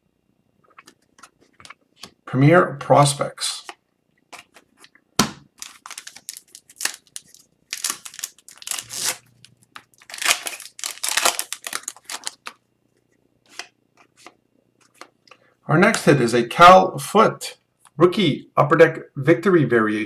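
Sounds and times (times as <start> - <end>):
cards sliding and flipping: 5.6 - 10.6
foil wrappers torn and crinkled: 5.6 - 12.6.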